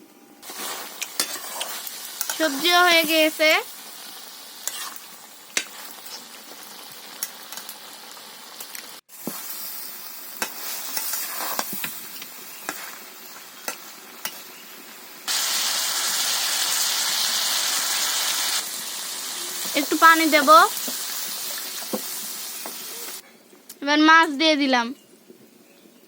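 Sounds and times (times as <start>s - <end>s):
curry sizzling in hot oil: 0.4s - 23.2s
spatula clinking and scraping: 0.5s - 2.6s, 4.6s - 6.6s, 10.4s - 13.0s, 13.6s - 14.6s.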